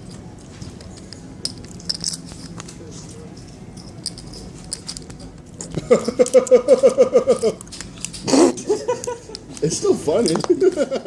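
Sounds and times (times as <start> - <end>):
person laughing: 5.7 - 7.6, 8.3 - 9.4, 10.5 - 11.0.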